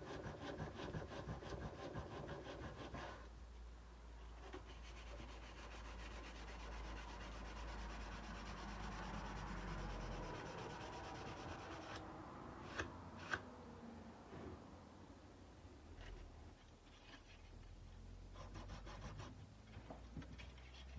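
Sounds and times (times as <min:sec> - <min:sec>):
sandpaper scratching on blade: 0:04.7 - 0:12.0.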